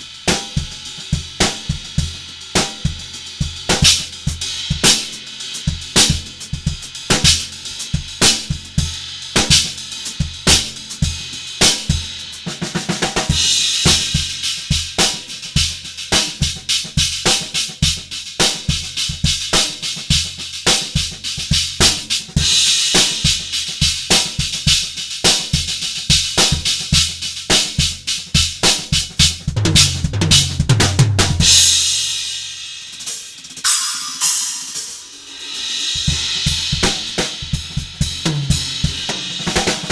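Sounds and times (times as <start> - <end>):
drum kit groove: 0.0 - 39.9
tom fill: 29.3 - 31.8, 33.6 - 39.9
cymbal crash: 33.6 - 37.1.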